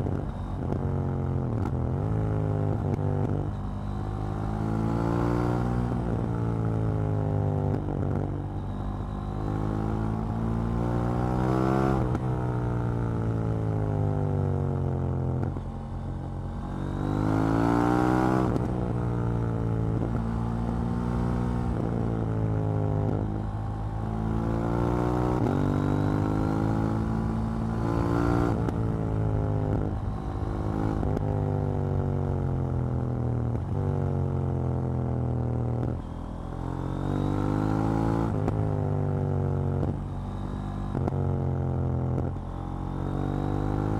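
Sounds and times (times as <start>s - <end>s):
motorcycle engine revving: 15.0s - 43.9s.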